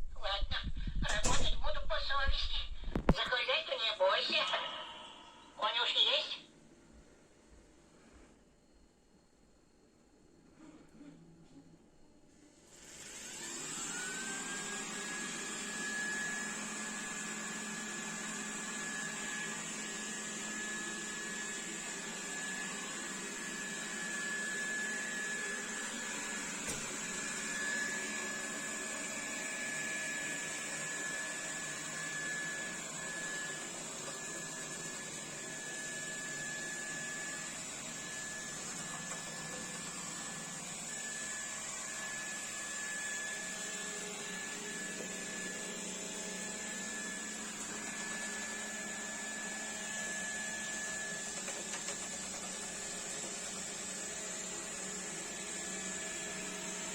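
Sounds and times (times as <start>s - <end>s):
robot vacuum fan whine: 12.4s - 56.9s.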